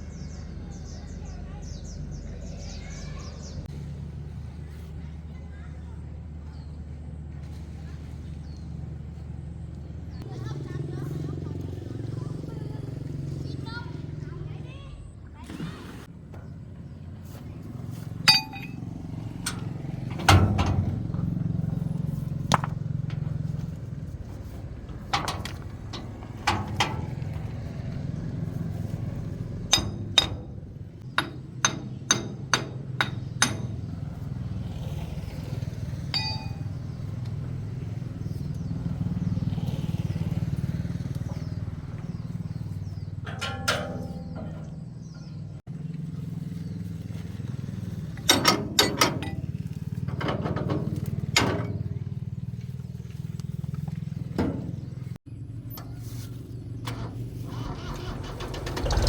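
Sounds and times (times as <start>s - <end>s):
metal tools clinking and knocking: 18.2s - 21.6s, 24.5s - 27.5s, 28.5s - 34.2s, 36.1s - 37.2s, 43.2s - 45.4s, 48.2s - 52.0s.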